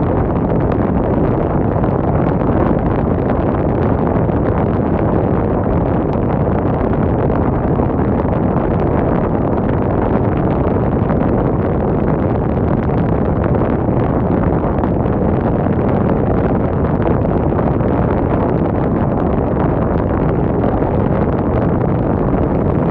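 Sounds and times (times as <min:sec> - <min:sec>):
wind on microphone: 0:00.0 - 0:22.9
wind rushing: 0:18.4 - 0:22.9.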